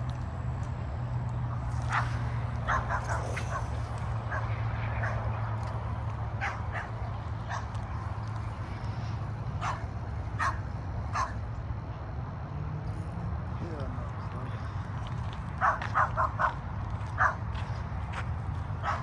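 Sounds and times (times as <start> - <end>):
low hum: 0.0 - 16.9
dog barking in sharp yips: 15.6 - 16.6.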